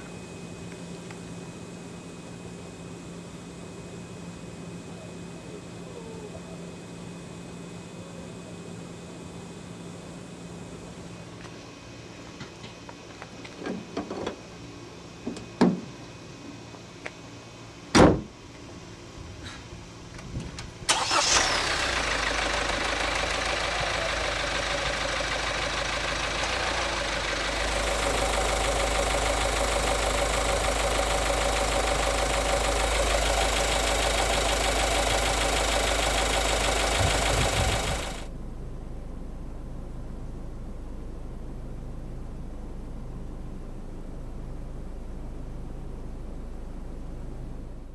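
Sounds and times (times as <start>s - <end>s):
car engine starting and running: 20.9s - 38.7s.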